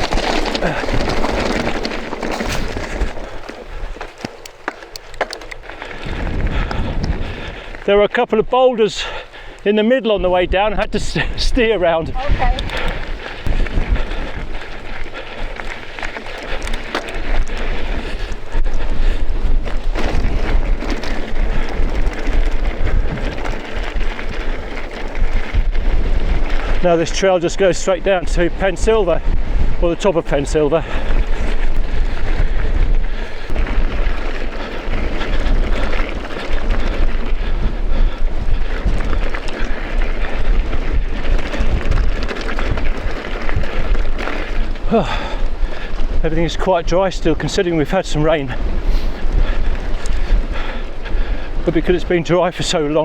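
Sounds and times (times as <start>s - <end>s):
bike knocks and rattles: 0.0s - 7.5s, 12.2s - 26.8s
gravel clicks and knocks: 0.0s - 8.4s, 10.6s - 53.0s
bike rattling: 0.0s - 53.0s
bike tyres rolling over stones: 0.0s - 53.0s
wind buffeting microphone: 0.0s - 53.0s.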